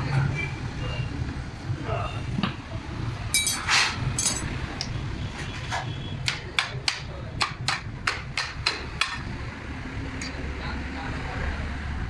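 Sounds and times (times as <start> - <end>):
low traffic rumble: 0.0 - 12.0
hammer striking metal: 3.3 - 4.5.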